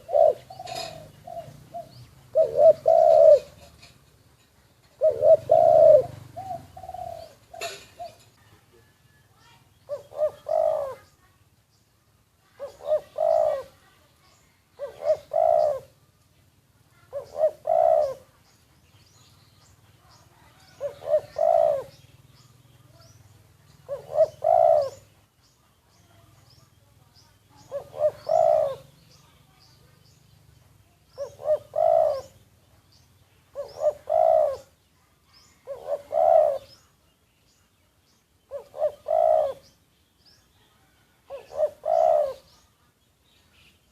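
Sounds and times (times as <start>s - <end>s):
dove cooing: 0.0s - 9.2s, 9.8s - 11.3s, 12.4s - 14.1s, 14.7s - 16.2s, 16.9s - 18.5s, 20.0s - 25.3s, 27.5s - 29.4s, 30.6s - 32.6s, 33.4s - 34.8s, 35.4s - 37.0s, 38.4s - 39.8s, 40.6s - 42.6s
faint high bird chirps: 4.5s - 43.9s.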